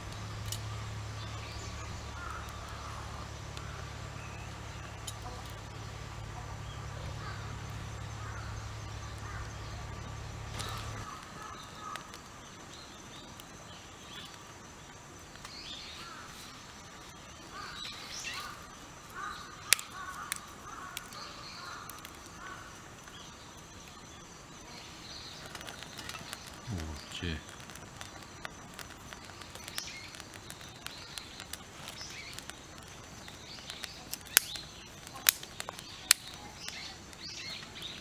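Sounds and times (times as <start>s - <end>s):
steady low hum: 0.0s - 12.9s, 26.2s - 30.2s
birds calling: 0.0s - 38.0s.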